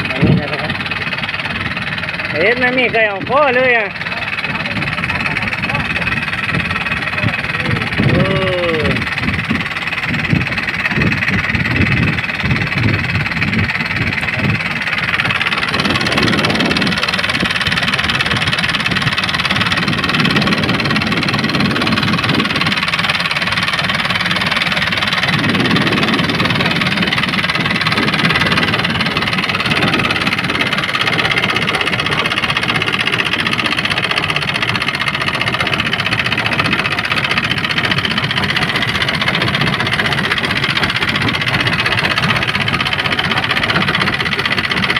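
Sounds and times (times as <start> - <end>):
boat engine running: 0.0 - 44.9.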